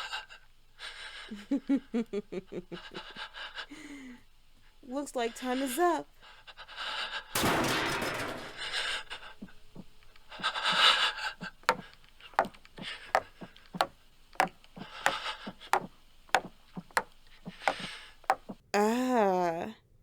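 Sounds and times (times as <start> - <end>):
door forced open with crash: 7.4 - 8.8
crashing and scraping: 7.4 - 13.9
footsteps: 9.4 - 18.6.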